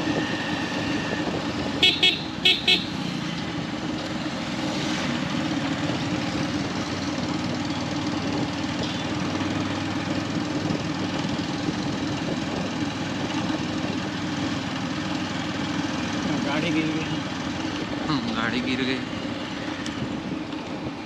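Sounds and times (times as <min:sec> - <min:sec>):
motorcycle engine running: 0:00.0 - 0:21.0
road and traffic noise: 0:00.0 - 0:21.0.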